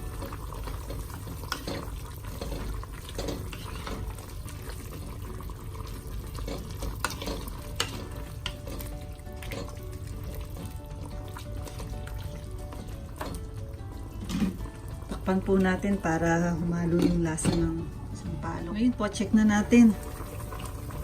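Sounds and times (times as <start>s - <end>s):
broth bubbling in pot: 0.0s - 21.0s
utensil clinking against pot: 0.2s - 4.5s, 6.2s - 13.6s.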